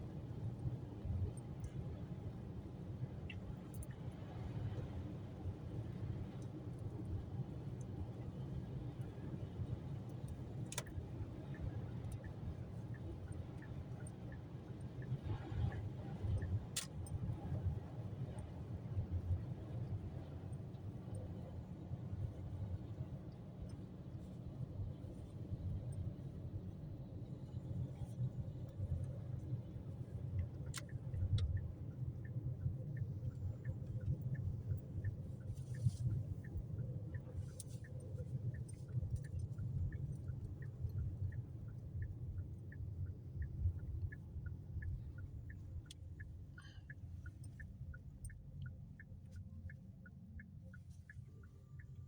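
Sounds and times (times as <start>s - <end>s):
road and engine rumble: 0.0s - 52.0s
light regular ticking: 27.7s - 52.0s.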